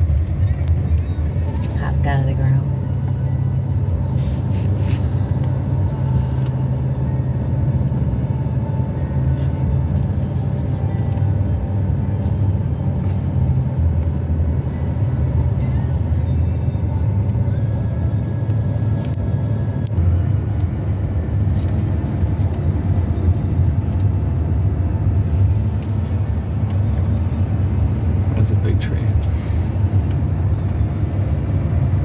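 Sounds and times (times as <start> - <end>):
car engine and tyre rumble: 0.0 - 32.0.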